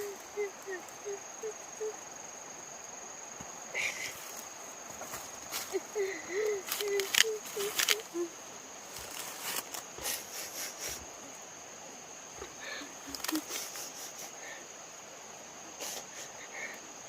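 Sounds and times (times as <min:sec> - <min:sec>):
crickets trilling: 0:00.0 - 0:17.0
small pitched chirps: 0:05.7 - 0:08.3.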